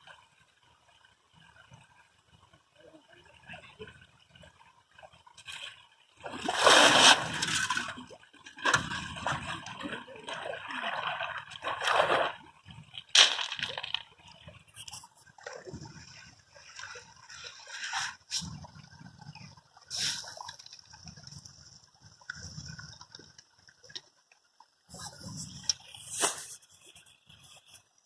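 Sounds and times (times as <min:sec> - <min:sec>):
water splashing and sloshing: 0:00.0 - 0:28.0.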